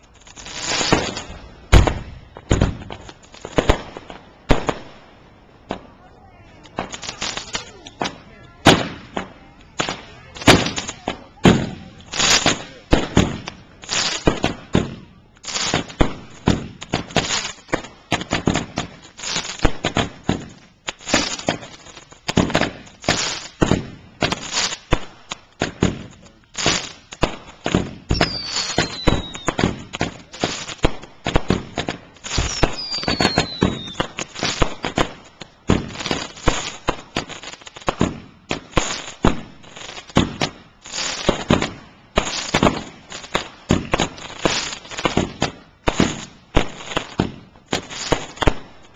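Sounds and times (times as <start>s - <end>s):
fireworks bangs and pops: 0.0s - 48.9s
falling firework whistles: 27.8s - 30.6s, 31.6s - 35.0s.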